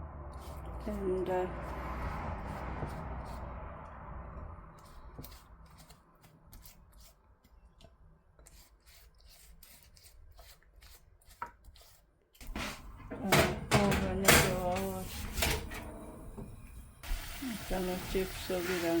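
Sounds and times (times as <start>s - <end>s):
light scraping of utensils: 11.8s - 16.8s.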